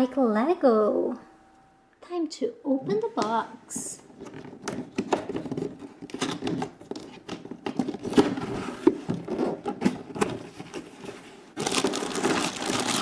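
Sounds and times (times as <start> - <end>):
plastic packaging crinkling: 4.1 - 13.0.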